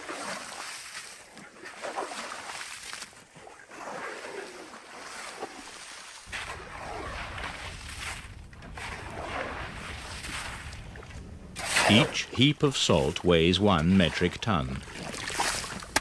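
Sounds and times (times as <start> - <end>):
wind on microphone: 6.3 - 13.8
shovels scraping salt: 11.6 - 12.3.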